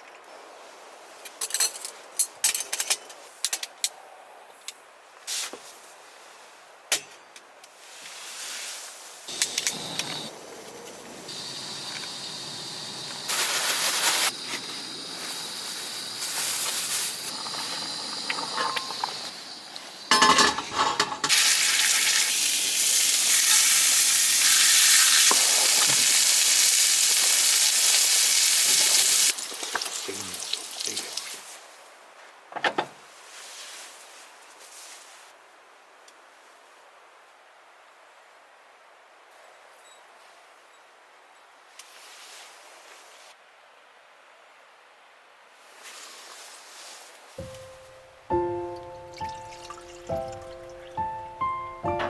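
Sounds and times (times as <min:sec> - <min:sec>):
pork sizzling in a pan: 0:11.3 - 0:20.0, 0:21.2 - 0:31.4
utensils knocking on pan: 0:20.1 - 0:21.3.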